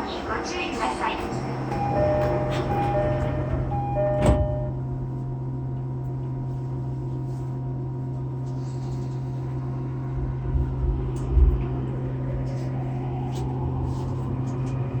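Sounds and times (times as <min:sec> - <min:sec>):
train low hum: 0:00.0 - 0:15.0
sliding doors thumping shut: 0:01.7 - 0:04.7
train door chime: 0:01.7 - 0:04.8.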